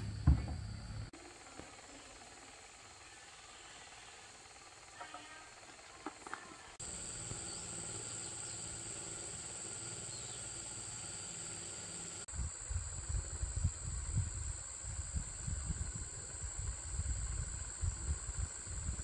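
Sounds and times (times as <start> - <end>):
high-pitched insect chirring: 6.8 - 19.0.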